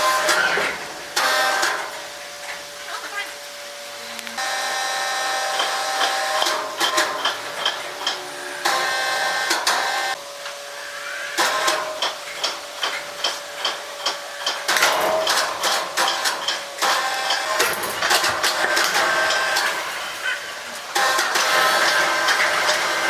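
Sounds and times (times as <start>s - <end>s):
sawmill machinery whine: 0.0s - 23.0s
sharp knocks and clatters: 5.6s - 8.2s, 11.4s - 19.8s.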